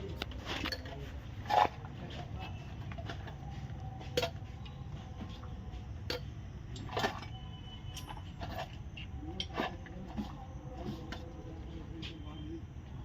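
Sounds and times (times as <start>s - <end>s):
steady low hum: 0.0s - 13.0s
metal tools clinking: 6.1s - 10.3s.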